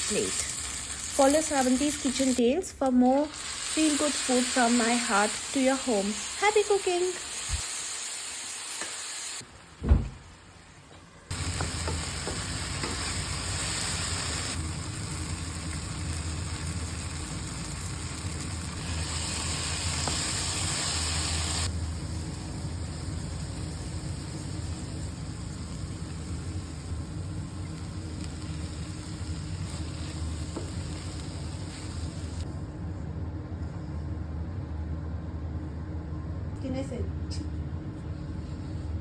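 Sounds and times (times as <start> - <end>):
food sizzling in hot oil: 0.0 - 2.4, 3.2 - 9.4, 11.3 - 32.4.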